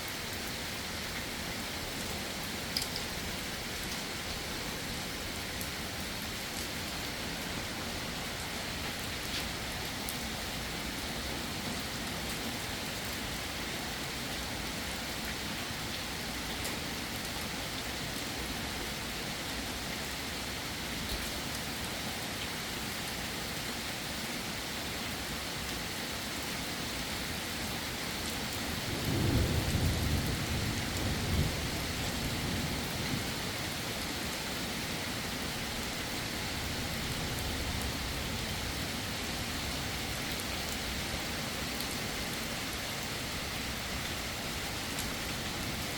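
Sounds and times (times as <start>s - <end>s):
heavy rain falling: 0.0s - 45.9s
low roll of thunder: 28.9s - 33.4s.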